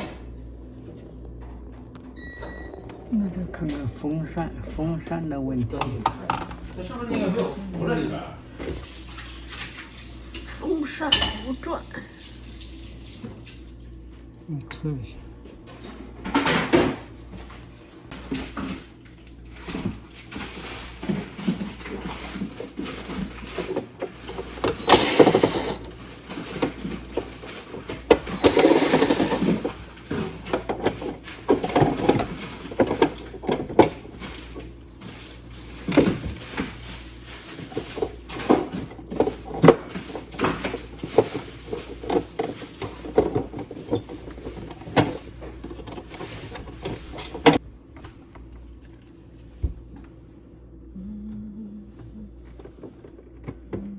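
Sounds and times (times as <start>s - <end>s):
low steady hum: 0.0s - 53.9s.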